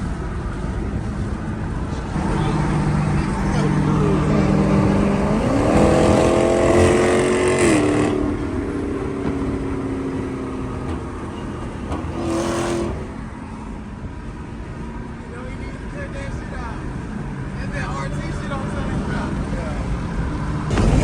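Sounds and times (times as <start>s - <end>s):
car engine accelerating: 1.9s - 14.5s.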